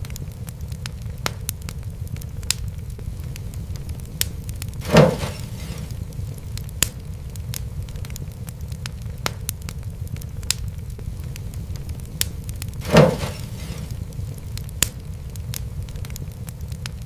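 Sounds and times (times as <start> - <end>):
wood fire crackling: 0.0 - 17.0
brief hiss: 4.8 - 6.0, 12.8 - 14.0.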